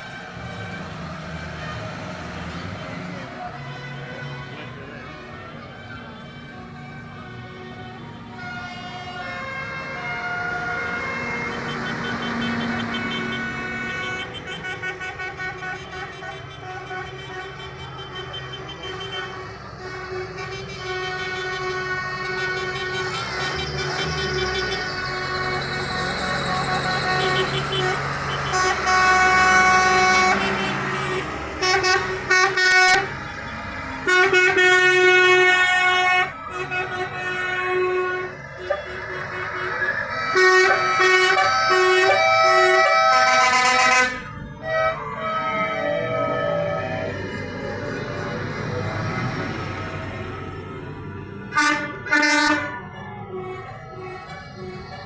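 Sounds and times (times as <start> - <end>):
vehicle engines passing: 0.0 - 55.0
horn toots: 8.4 - 33.1, 34.0 - 49.2, 51.5 - 54.9.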